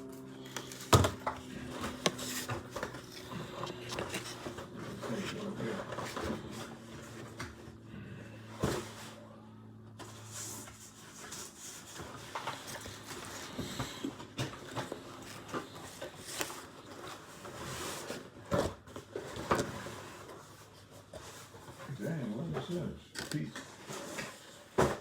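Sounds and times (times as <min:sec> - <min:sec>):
objects being handled: 0:00.4 - 0:07.4.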